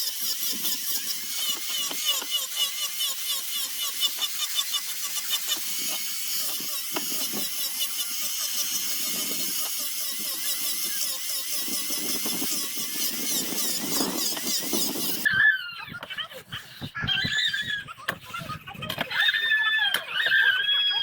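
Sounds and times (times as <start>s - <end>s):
power sander on wood: 0.0s - 15.3s.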